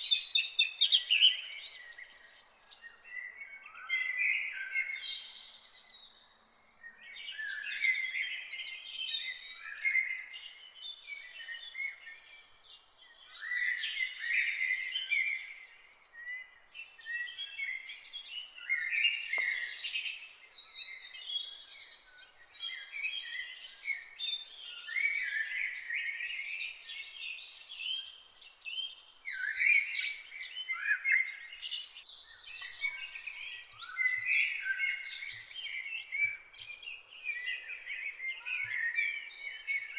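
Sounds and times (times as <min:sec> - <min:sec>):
birds singing and chirping: 0:00.0 - 0:39.9
faint click: 0:19.3 - 0:19.7.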